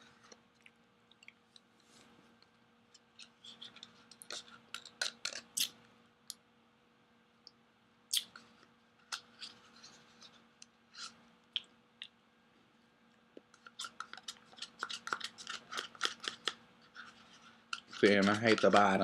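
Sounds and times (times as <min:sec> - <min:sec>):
spoon scraping plastic cup: 0:03.2 - 0:05.7, 0:13.6 - 0:19.0.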